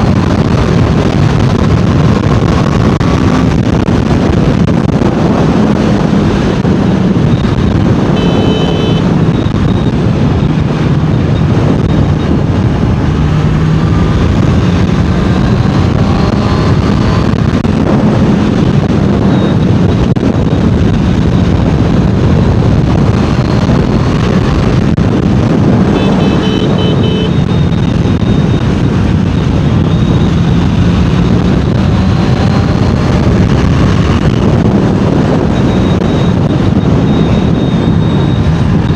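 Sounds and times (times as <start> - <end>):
motorcycle engine and exhaust: 0.0 - 38.9
wind rushing over microphone: 0.0 - 38.9
short high beeping tones: 7.2 - 12.7, 19.2 - 21.6, 25.8 - 34.6, 35.2 - 38.9.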